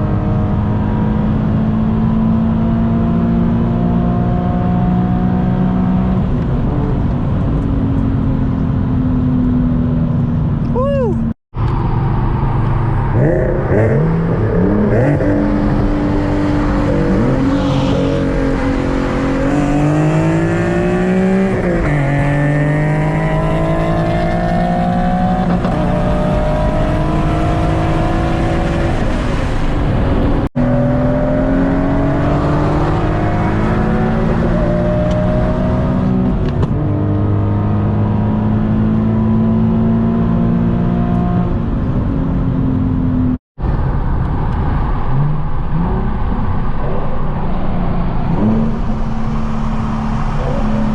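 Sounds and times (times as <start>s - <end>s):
car engine revving: 11.7s - 50.9s.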